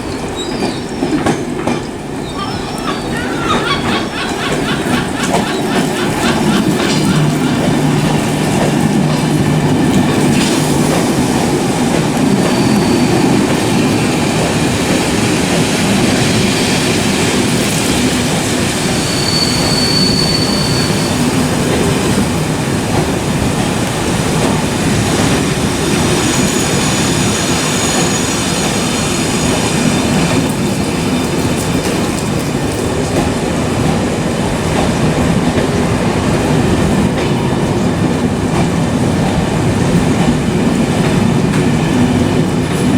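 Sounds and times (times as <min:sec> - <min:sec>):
train wheels rumbling on rails: 0:00.0 - 0:42.9
high-pitched wheel squeals: 0:12.4 - 0:13.7, 0:18.7 - 0:21.4.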